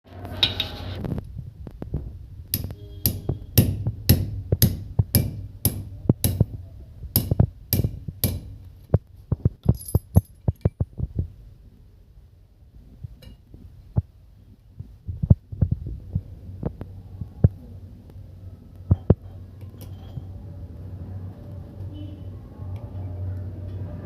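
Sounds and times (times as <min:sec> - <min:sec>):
hammer blows: 0:02.6 - 0:06.6.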